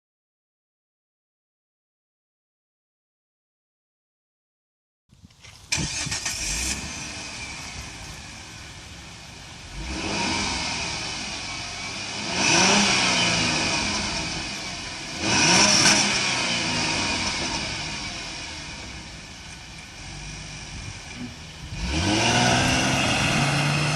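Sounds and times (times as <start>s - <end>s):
car engine starting and revving: 5.4s - 23.9s.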